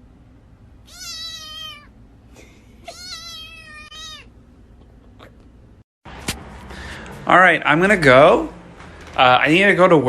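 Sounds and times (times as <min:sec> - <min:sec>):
cat meowing: 0:00.8 - 0:02.0, 0:02.9 - 0:04.4.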